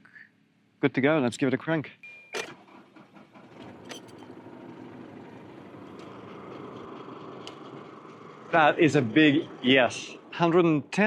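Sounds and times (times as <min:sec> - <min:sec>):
car engine starting and idling: 0:02.4 - 0:11.0.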